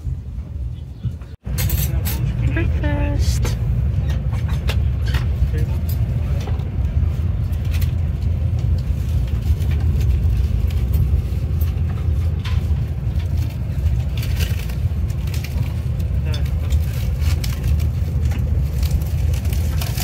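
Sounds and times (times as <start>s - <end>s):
train rumbling at speed: 0.0s - 20.0s.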